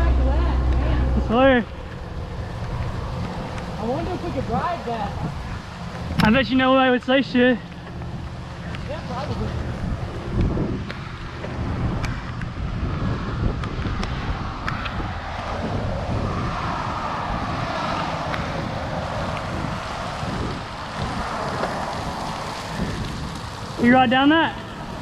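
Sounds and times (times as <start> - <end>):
wind rumbling on microphone: 0.0 - 25.0
bike clicks and knocks: 5.8 - 9.0.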